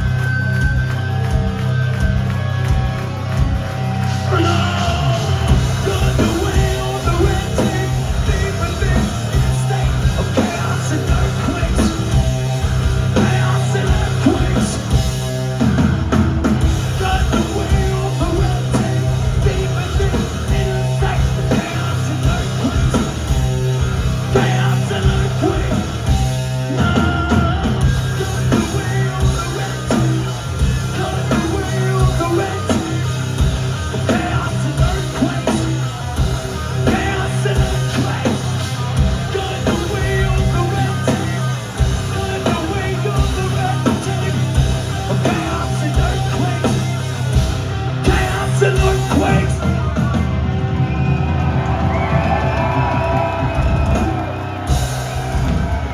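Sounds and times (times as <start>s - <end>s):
heavy rock band playing: 0.0s - 55.9s
person singing: 4.1s - 12.3s, 36.8s - 47.0s.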